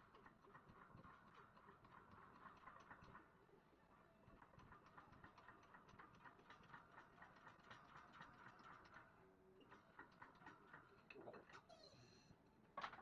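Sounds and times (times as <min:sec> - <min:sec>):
faint rapid ticking and clicking: 0:00.0 - 0:03.4, 0:04.2 - 0:11.6.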